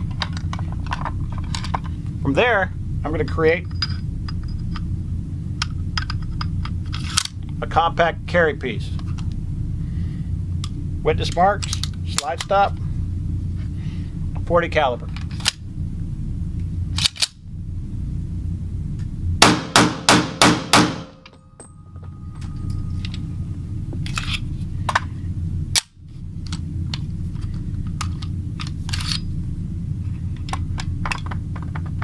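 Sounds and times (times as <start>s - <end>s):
steady low rumble: 0.0s - 32.0s
rapid pistol shots: 19.4s - 21.2s.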